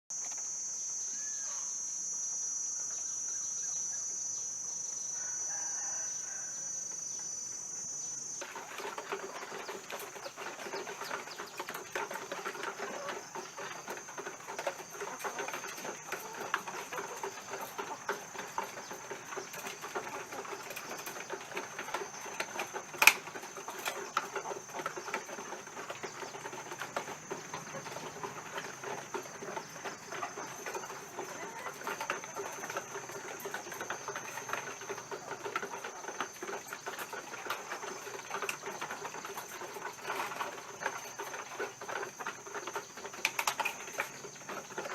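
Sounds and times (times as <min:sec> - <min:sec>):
hens clucking: 0:07.9 - 0:44.9
pecking clicks and rustles: 0:08.2 - 0:44.9.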